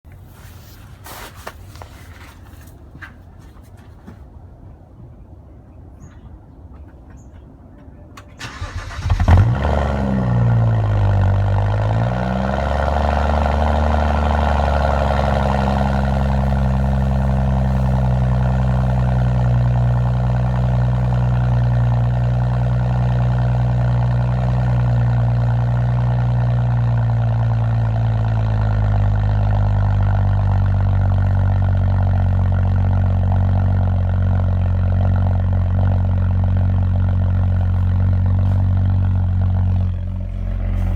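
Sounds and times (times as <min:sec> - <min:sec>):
car engine idling: 0:08.2 - 0:40.9.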